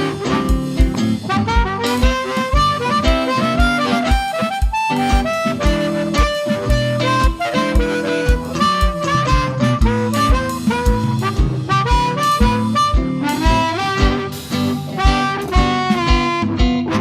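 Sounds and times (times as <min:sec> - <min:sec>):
bass: 0:00.0 - 0:01.8, 0:09.2 - 0:17.0
melodic lead line: 0:00.0 - 0:16.7
guitar: 0:00.0 - 0:17.0
kick drum: 0:00.0 - 0:17.0.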